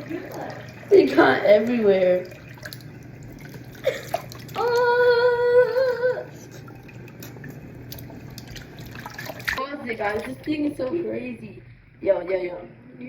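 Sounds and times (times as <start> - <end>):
small splashes and knocks: 0.0 - 5.0, 6.4 - 10.4
running tap water: 0.0 - 12.5
person humming: 4.6 - 6.5.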